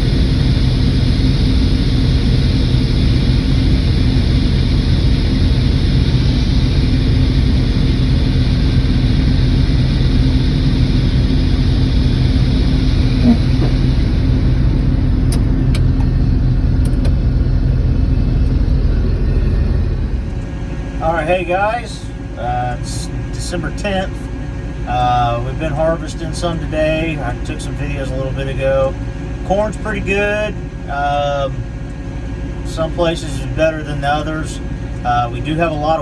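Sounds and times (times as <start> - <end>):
diesel engine running steadily: 0.0 - 36.0
sharp clicks: 15.3 - 16.1.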